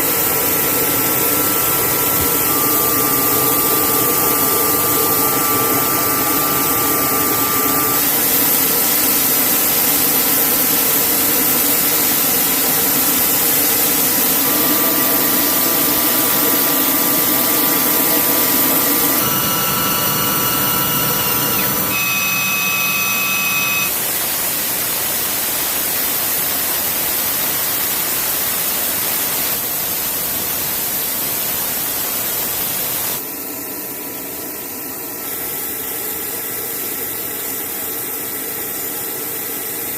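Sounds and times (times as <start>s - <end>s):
helicopter engine and rotor: 0.0s - 9.3s, 10.2s - 23.9s.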